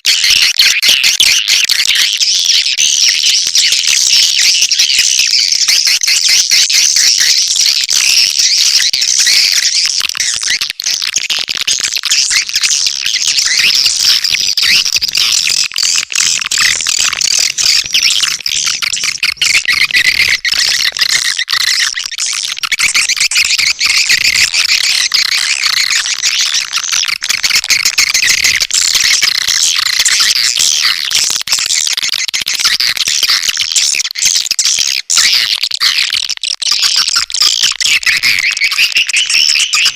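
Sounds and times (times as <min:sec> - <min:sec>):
swiftlets twittering: 0:12.3 - 0:29.4.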